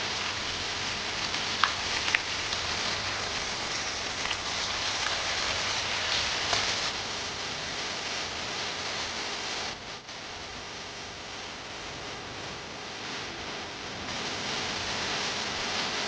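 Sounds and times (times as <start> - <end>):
vegetables sizzling in hot fat: 0.0 - 9.0.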